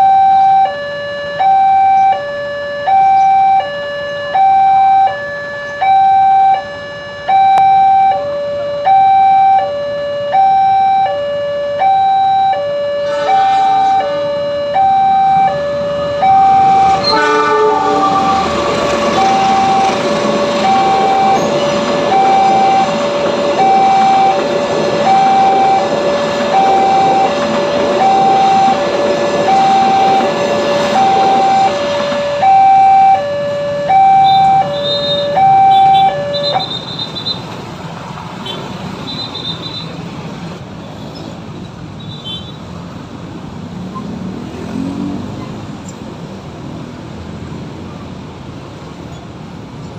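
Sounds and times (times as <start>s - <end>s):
level crossing two-tone alarm: 0.0s - 37.3s
train passing rumble: 12.6s - 42.0s
train horn blasts: 13.0s - 14.6s, 15.6s - 37.2s.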